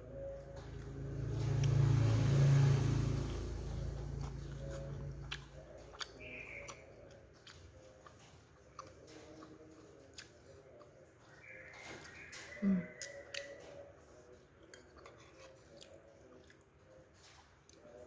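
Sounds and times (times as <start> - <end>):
low hum: 0.0 - 7.1
wet chewing: 0.3 - 18.0.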